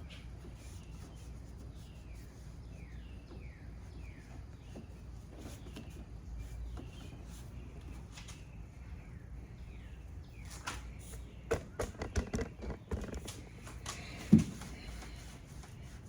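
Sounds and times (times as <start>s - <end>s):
knocks and clicks of hand work: 11.5s - 14.8s.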